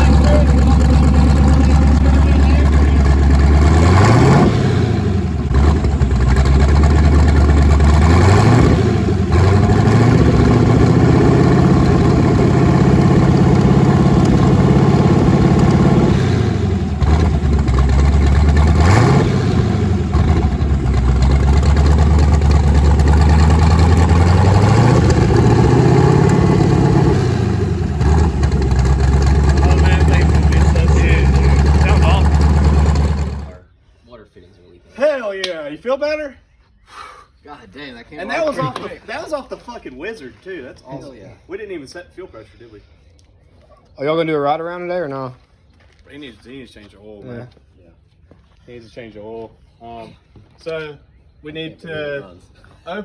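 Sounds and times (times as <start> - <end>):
engine revving up and down: 0.0 - 33.6.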